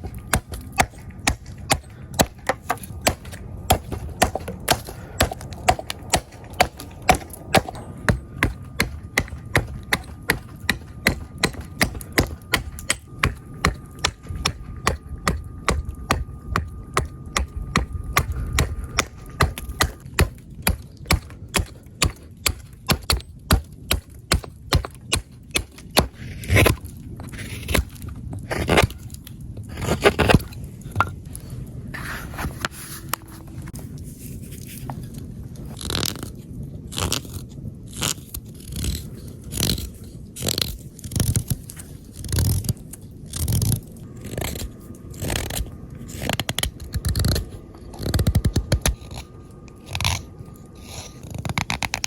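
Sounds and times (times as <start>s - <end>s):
hatchet chopping wood: 0.0s - 26.8s.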